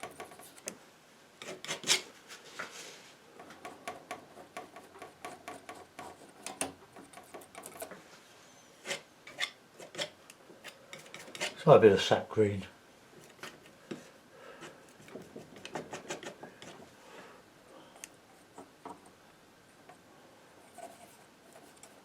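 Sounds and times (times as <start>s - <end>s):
palette knife scraping paint: 1.4s - 2.1s, 8.8s - 11.7s, 14.6s - 16.9s.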